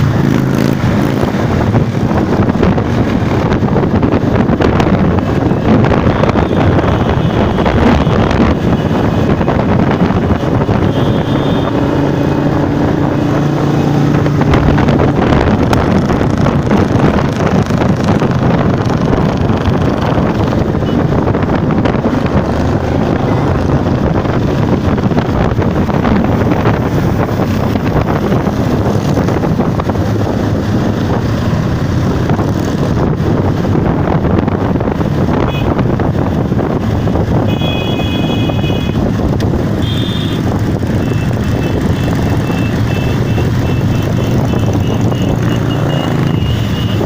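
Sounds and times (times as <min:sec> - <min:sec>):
motorcycle engines passing: 0:00.0 - 0:47.0
wind noise on microphone: 0:00.0 - 0:47.0.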